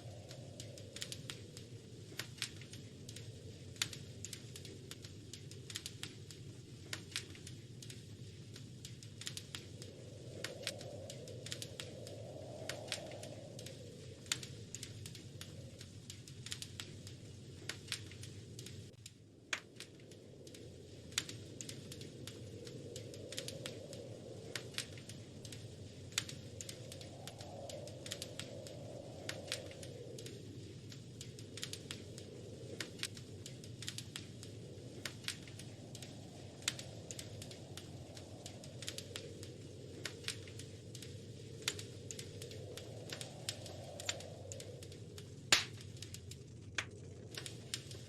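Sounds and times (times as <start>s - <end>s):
wood fire crackling: 0.0s - 48.0s.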